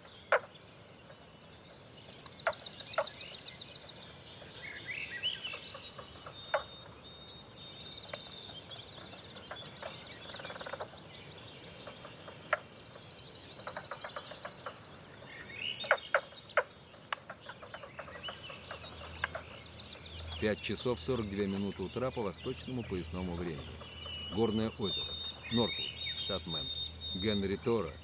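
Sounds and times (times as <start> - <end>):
sharp click-like bird calls: 0.0 - 0.5, 5.4 - 6.8, 9.0 - 11.0, 13.6 - 14.9, 15.8 - 19.6
birds chirping: 0.0 - 28.0
birds trilling: 0.0 - 28.0.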